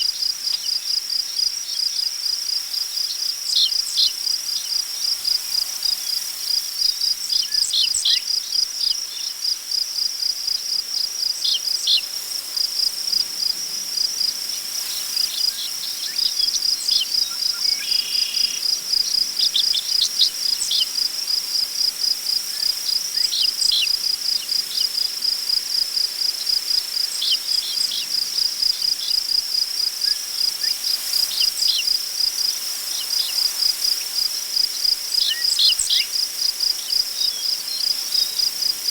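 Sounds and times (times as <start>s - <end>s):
crickets chirping: 0.0s - 38.9s
wind rustling grass: 12.1s - 38.9s.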